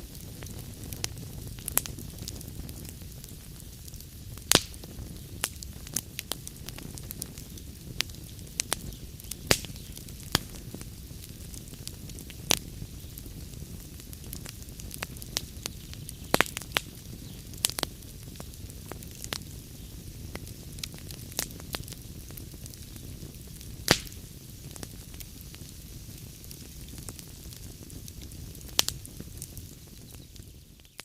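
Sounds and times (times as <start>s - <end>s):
fire crackles and pops: 0.0s - 31.0s
flames rumbling and hissing: 0.0s - 31.0s.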